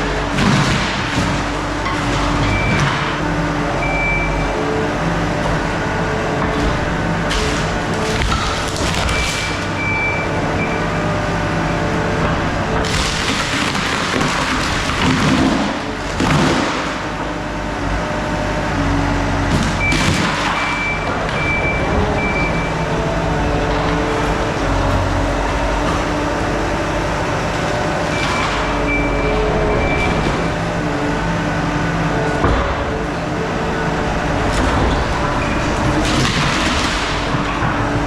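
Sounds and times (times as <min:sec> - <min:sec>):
skid steer engine working: 0:00.0 - 0:38.0
timber cracking and crashing: 0:00.3 - 0:03.2, 0:06.3 - 0:09.8, 0:12.2 - 0:17.3, 0:19.5 - 0:22.6, 0:32.4 - 0:38.0
backup alarm beeping: 0:02.4 - 0:03.0, 0:03.8 - 0:04.5, 0:09.1 - 0:11.1, 0:19.8 - 0:22.9, 0:28.1 - 0:30.5.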